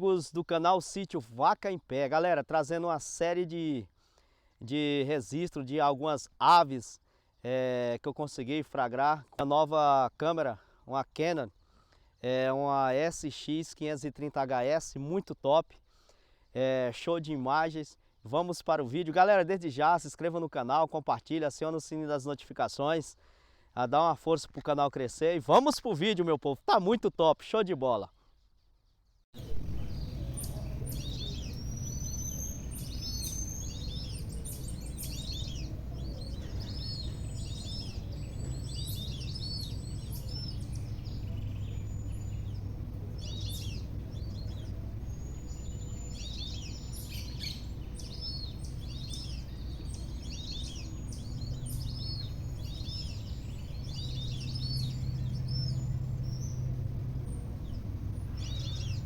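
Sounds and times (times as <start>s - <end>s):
birds chirping: 28.3s - 59.0s
steady low rumble: 29.4s - 59.0s.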